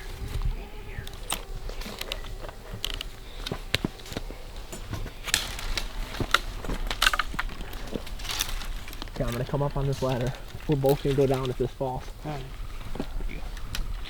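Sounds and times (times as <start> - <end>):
gear rustling: 0.0 - 14.0
gear clicking and knocking: 1.1 - 11.7.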